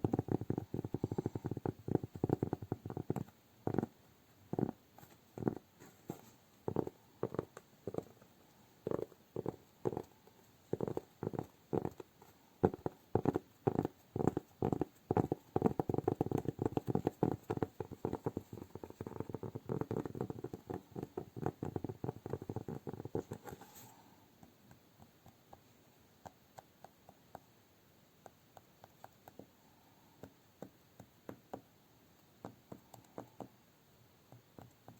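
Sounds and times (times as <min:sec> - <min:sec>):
hands tapping and patting: 0:00.0 - 0:27.5, 0:28.2 - 0:29.5, 0:30.2 - 0:31.7.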